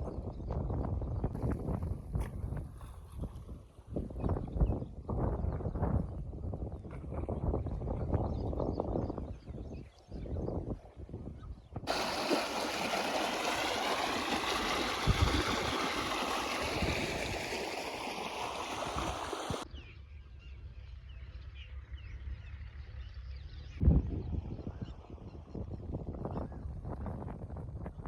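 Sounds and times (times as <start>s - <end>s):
rushing gurgling water: 11.9s - 19.6s.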